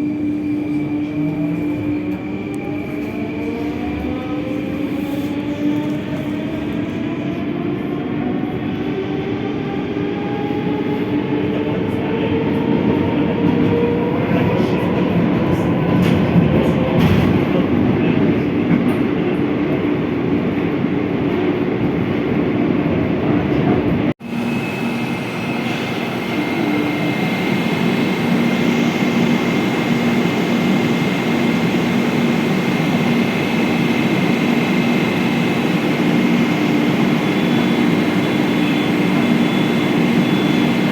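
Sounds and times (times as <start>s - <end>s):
train traction motor whine: 24.3s - 40.9s.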